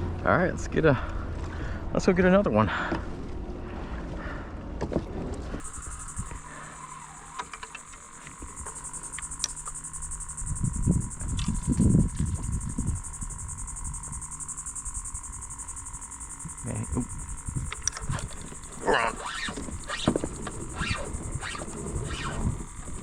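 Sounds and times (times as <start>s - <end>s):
faint steady hum: 0.0s - 23.0s
insects trilling: 5.6s - 23.0s.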